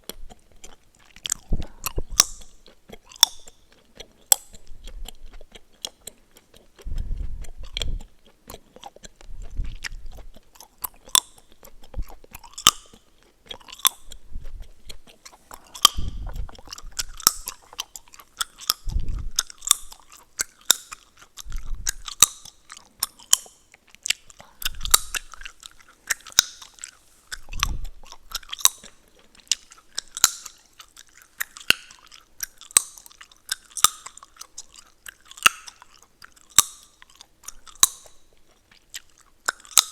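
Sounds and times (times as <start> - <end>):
gum chewing smacks and pops: 0.0 - 39.9.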